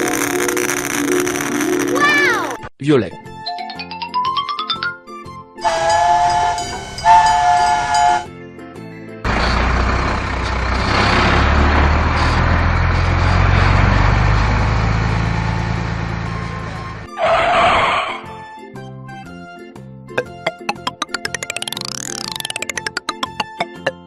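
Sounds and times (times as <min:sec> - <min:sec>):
chord-like train whistle blasts: 0:05.6 - 0:08.4.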